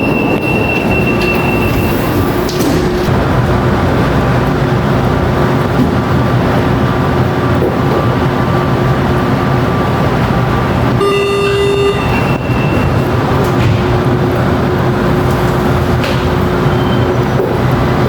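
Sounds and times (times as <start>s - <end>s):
train rumbling: 0.0s - 18.0s
steady electronic tone: 10.5s - 13.3s.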